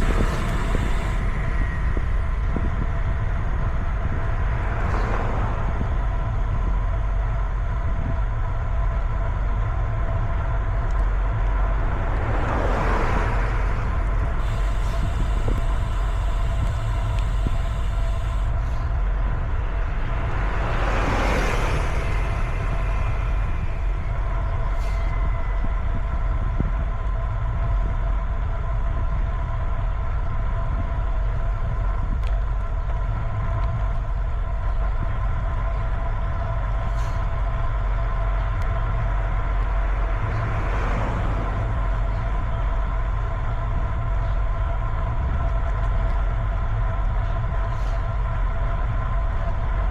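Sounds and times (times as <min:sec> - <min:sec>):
bicycle road noise: 0:00.0 - 0:49.9
wind rumble: 0:00.0 - 0:49.9
motor vehicle passing: 0:11.8 - 0:25.0, 0:38.8 - 0:44.1.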